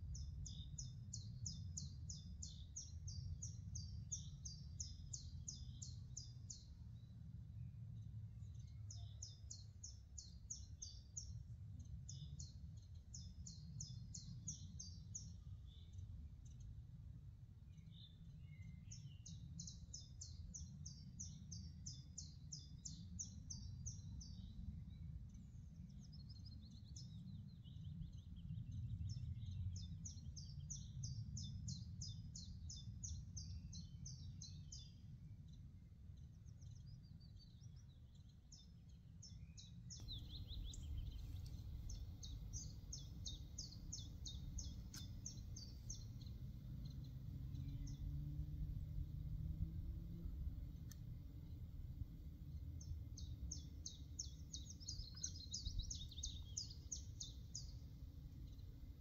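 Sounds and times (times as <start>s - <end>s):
low background rumble: 39.3s - 59.0s.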